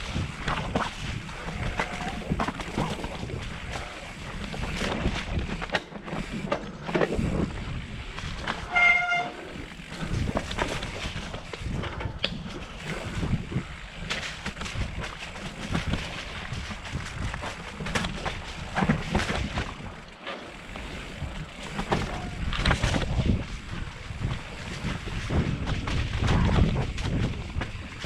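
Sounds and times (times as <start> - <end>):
vehicle horn toot: 8.7 - 9.5.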